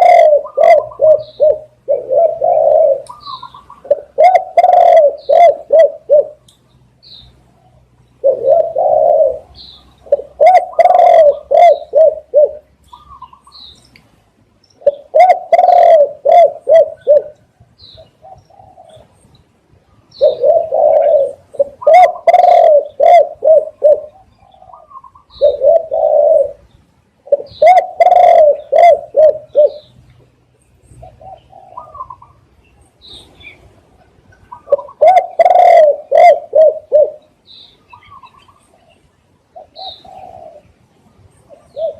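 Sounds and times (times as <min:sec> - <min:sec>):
dove cooing: 0:00.0 - 0:06.4, 0:07.6 - 0:13.6, 0:14.8 - 0:19.2, 0:20.1 - 0:30.0, 0:30.9 - 0:40.8, 0:41.4 - 0:41.9
faint high bird chirps: 0:03.0 - 0:04.0.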